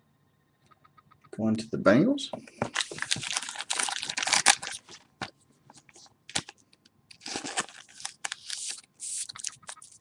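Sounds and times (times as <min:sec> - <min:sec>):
packaging crinkling: 0:02.7 - 0:10.0.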